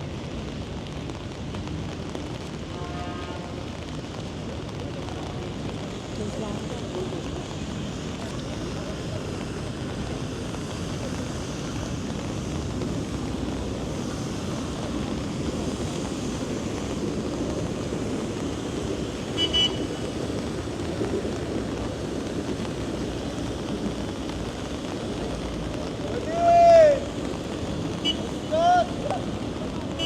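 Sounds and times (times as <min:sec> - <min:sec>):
city street traffic noise: 0:00.0 - 0:30.0
vehicle horn double beep: 0:19.4 - 0:19.9.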